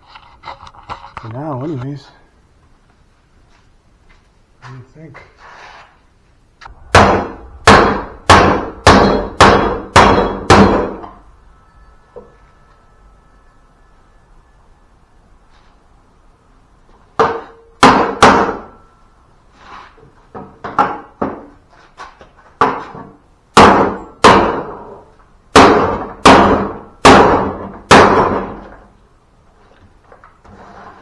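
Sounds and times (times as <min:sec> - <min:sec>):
hammer striking metal: 0:06.7 - 0:13.6, 0:17.2 - 0:18.9, 0:23.6 - 0:24.9.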